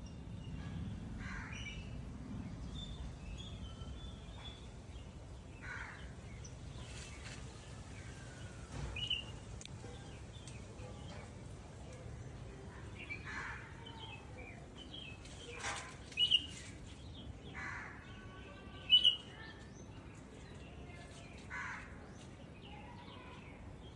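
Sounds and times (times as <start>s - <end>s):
small birds chirping: 4.5s - 17.6s, 18.7s - 21.5s.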